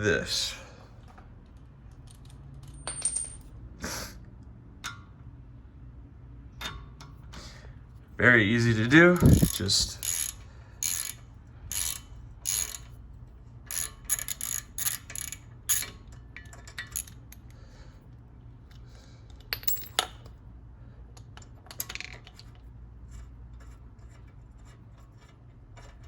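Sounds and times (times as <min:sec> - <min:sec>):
ratchet wrench clicking: 0:09.1 - 0:13.0, 0:13.7 - 0:17.5.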